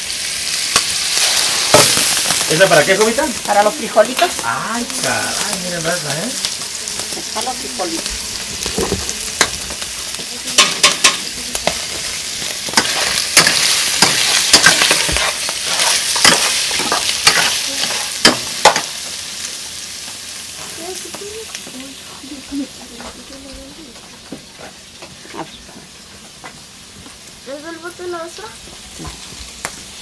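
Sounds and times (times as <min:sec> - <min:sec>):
ribs sizzling in a pot: 0:00.0 - 0:30.0.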